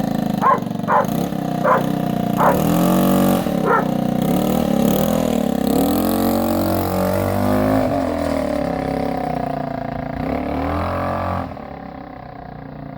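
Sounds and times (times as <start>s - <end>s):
motorbike engine revving: 0.0s - 8.4s.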